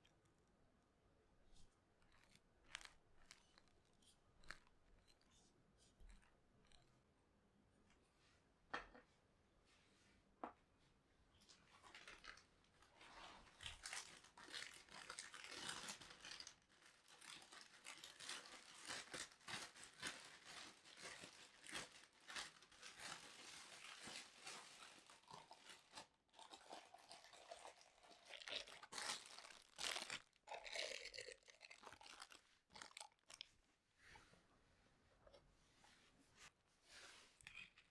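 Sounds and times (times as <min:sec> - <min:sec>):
crinkly material rustling: 0:01.5 - 0:06.3, 0:11.4 - 0:33.6.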